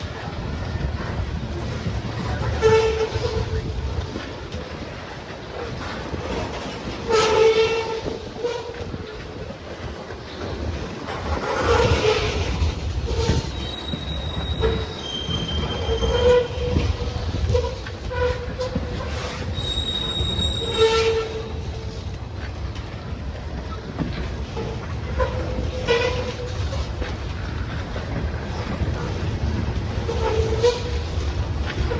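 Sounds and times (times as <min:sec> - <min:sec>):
freight train rumbling past: 0:00.0 - 0:31.9
train wheels squealing: 0:11.3 - 0:22.0
short pitched screeches: 0:19.2 - 0:21.5.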